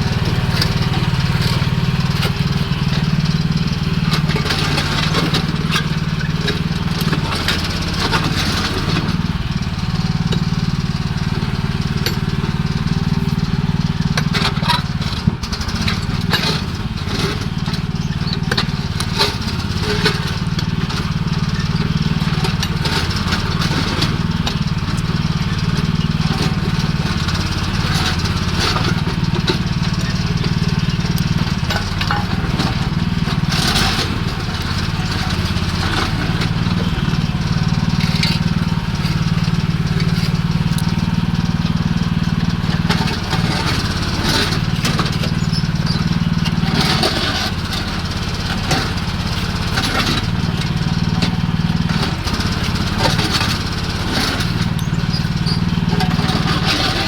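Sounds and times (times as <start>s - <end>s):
excavator engine running: 0.0s - 57.0s.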